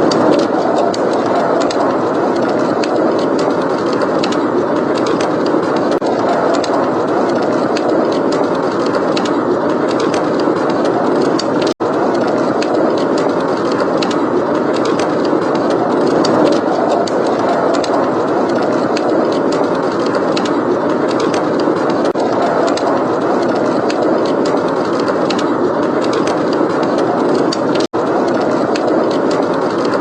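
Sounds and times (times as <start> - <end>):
rushing blizzard wind: 0.0 - 30.0
wood fire crackling: 0.0 - 30.0.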